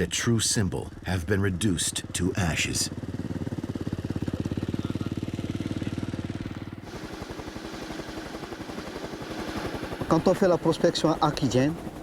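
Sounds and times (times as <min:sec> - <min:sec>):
engine running with a pulse: 0:02.0 - 0:10.2.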